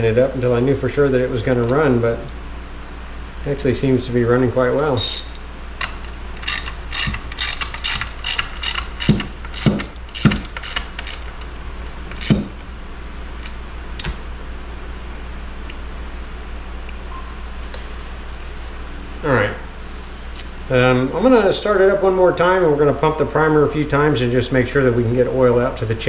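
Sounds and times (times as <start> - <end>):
steady low hum: 0.0 - 26.0
sharp metallic clicks and knocks: 4.8 - 12.7, 13.4 - 14.2.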